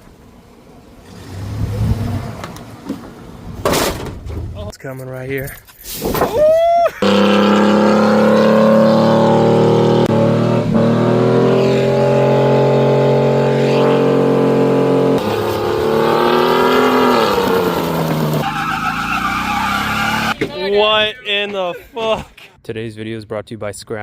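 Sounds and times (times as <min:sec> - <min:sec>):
truck engines revving high: 0:00.0 - 0:03.8, 0:06.9 - 0:21.8.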